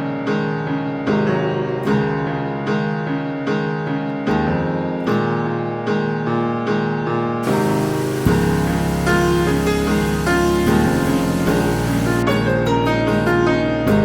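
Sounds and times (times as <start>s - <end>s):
piano playing chords: 0.0s - 14.0s.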